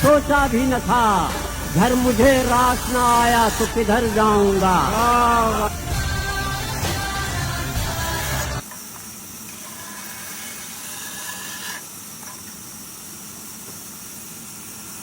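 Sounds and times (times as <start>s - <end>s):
music: 0.0s - 8.6s
steady hiss: 0.0s - 15.0s.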